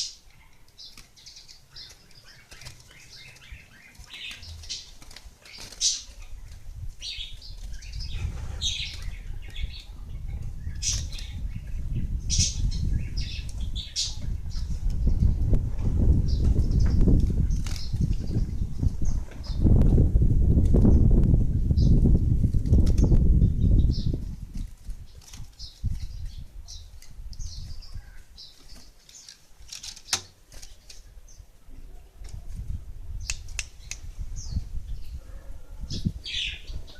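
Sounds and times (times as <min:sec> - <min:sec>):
birds chirping: 0:00.0 - 0:20.1, 0:20.7 - 0:36.9
wings fluttering: 0:00.9 - 0:11.6, 0:12.3 - 0:19.8, 0:22.0 - 0:31.2.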